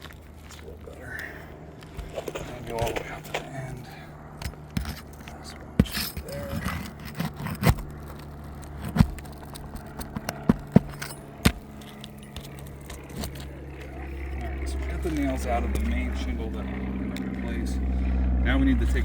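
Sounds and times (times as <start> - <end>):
roof tool scraping shingles: 4.4 - 13.6.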